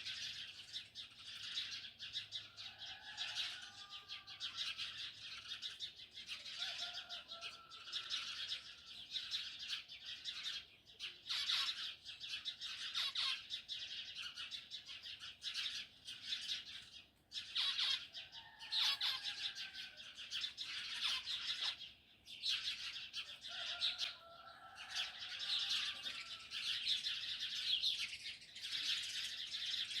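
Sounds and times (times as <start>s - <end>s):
many small birds chirping: 0.0s - 30.0s.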